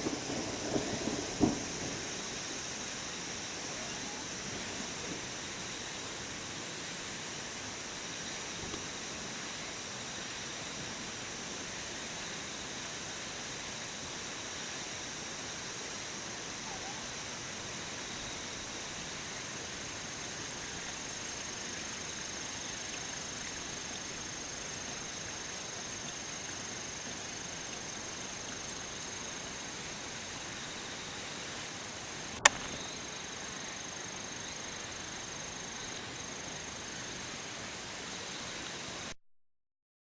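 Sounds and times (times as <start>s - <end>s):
background hiss: 0.0s - 39.2s
sharp click: 32.4s - 32.9s.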